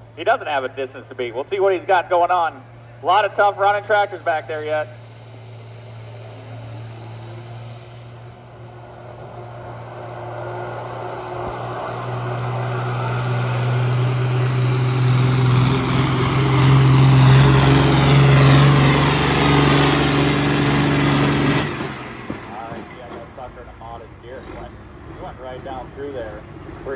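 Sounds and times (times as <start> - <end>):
pulling tractor engine at full power: 2.3 - 26.9.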